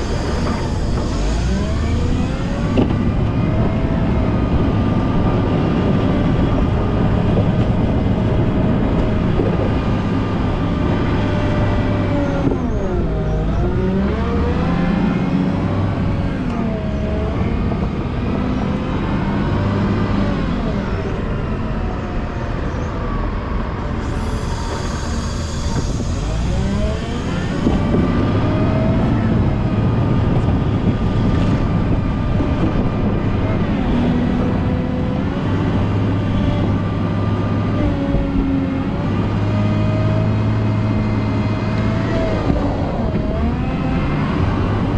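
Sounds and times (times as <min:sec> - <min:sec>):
wheel loader diesel engine: 0:00.0 - 0:44.9
high hiss: 0:24.0 - 0:27.7.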